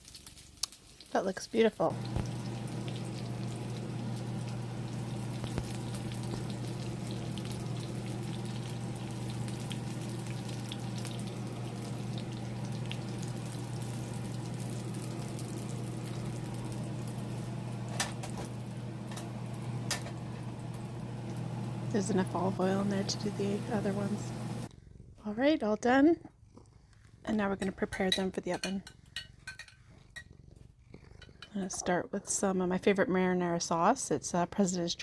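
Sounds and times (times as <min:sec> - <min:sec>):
chicken sizzling in a pan: 0:00.0 - 0:24.7
low hum: 0:01.9 - 0:24.7.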